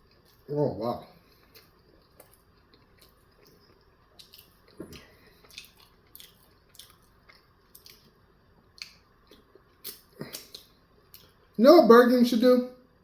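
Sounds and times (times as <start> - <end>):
person chewing food: 0.0 - 0.5, 1.2 - 11.6.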